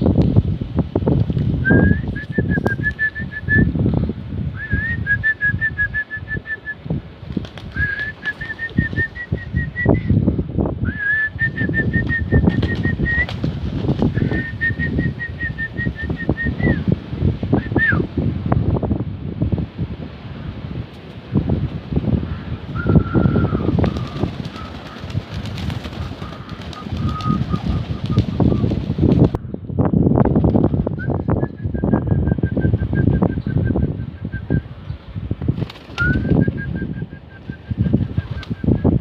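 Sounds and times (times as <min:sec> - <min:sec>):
gusting wind buffeting microphone: 0:00.0 - 0:39.0.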